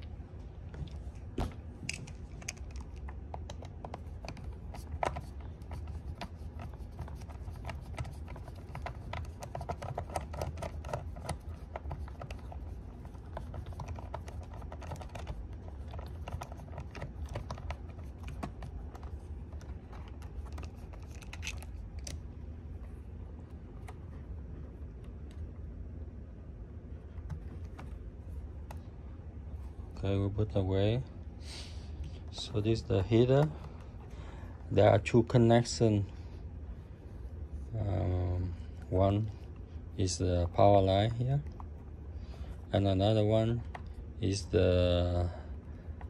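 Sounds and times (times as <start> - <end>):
low steady hum: 0.0 - 46.0
screwdriver clicking and scraping: 2.0 - 22.2.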